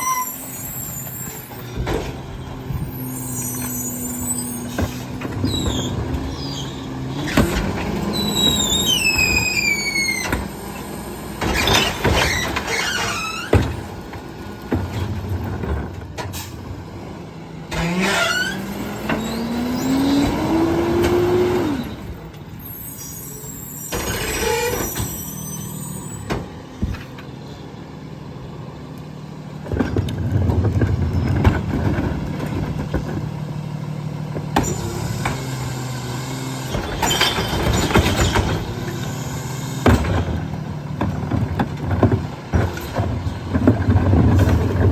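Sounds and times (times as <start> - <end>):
high falling squeals: 0.0 - 7.4, 8.0 - 13.6, 17.9 - 26.3
hydraulic whine: 0.0 - 14.0, 17.7 - 27.9, 29.6 - 44.9
garbage truck packer compacting: 0.0 - 44.9.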